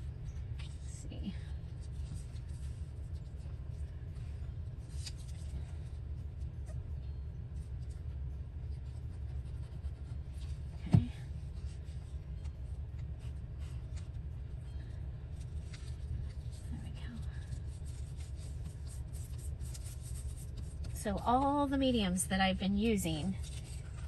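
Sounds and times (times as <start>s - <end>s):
steady low hum: 0.0s - 24.0s
paper and fabric rustling: 0.6s - 6.8s, 15.3s - 21.8s, 22.8s - 24.0s.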